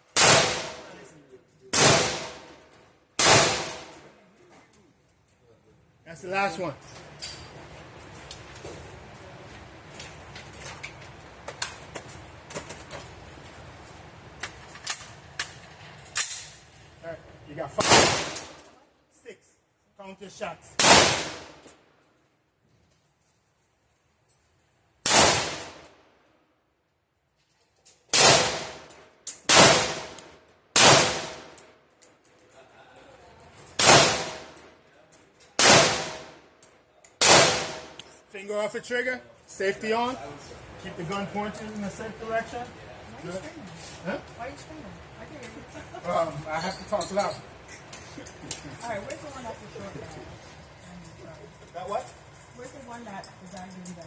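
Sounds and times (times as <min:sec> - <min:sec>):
gunshots: 0:00.1 - 0:00.9, 0:01.7 - 0:02.5, 0:03.2 - 0:04.0, 0:17.8 - 0:18.6, 0:20.8 - 0:21.6, 0:25.0 - 0:25.9, 0:28.1 - 0:28.9, 0:29.5 - 0:30.2, 0:30.8 - 0:31.5, 0:33.8 - 0:34.6, 0:35.6 - 0:36.4, 0:37.2 - 0:38.0.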